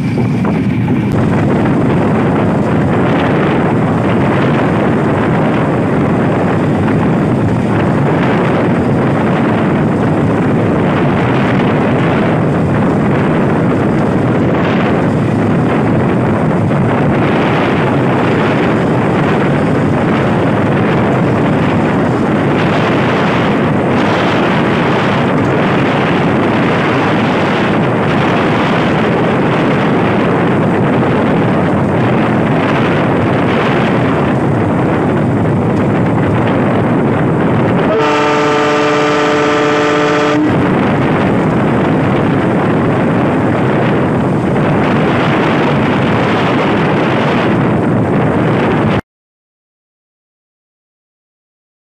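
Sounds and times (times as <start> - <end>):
train rushing on rails: 0.0 - 49.0
locomotive horn blast: 37.8 - 40.7.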